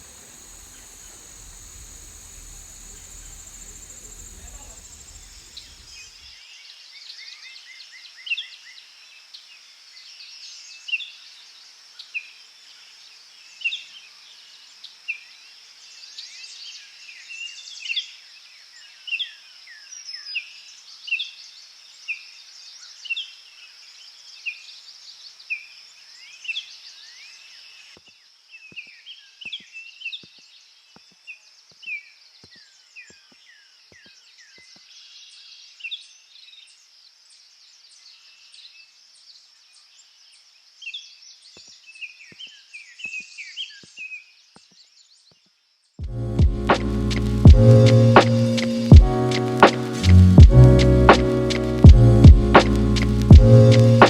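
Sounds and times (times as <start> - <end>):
high-pitched insect drone: 0.0 - 6.0
birds chirping descending: 0.0 - 6.1.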